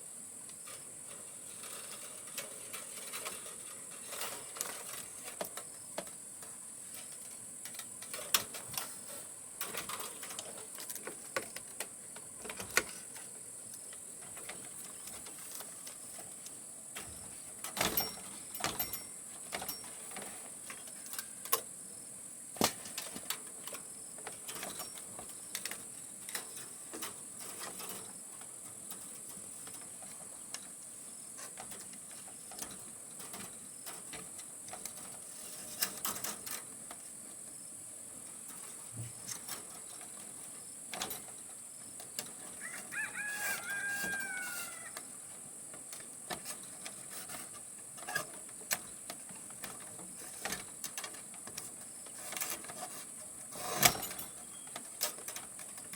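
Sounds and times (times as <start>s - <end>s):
steady high hiss: 0.0s - 55.9s
rooster crowing: 42.6s - 45.0s
light clicks and knocks: 45.7s - 55.9s.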